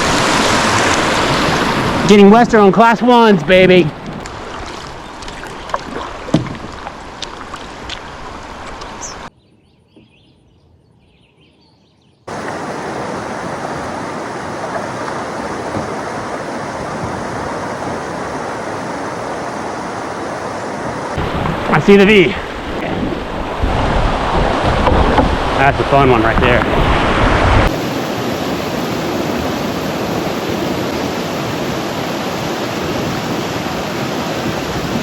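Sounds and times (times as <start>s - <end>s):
river water rushing: 0.0s - 9.3s, 12.3s - 35.0s
canoe knocks: 3.9s - 7.6s, 14.6s - 18.3s, 22.6s - 25.6s.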